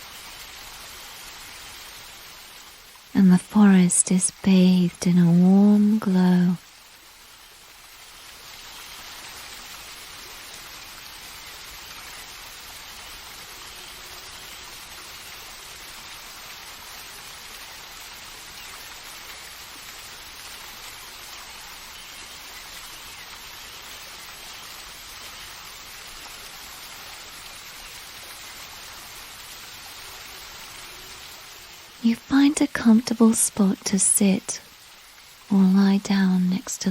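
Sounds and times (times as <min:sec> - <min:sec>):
falling water hiss: 0:00.0 - 0:36.9.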